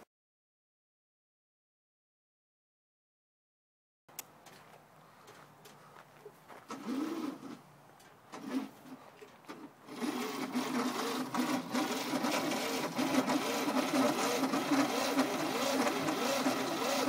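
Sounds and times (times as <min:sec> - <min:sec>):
small engine revving with clatter: 0:06.7 - 0:07.6, 0:08.3 - 0:17.0.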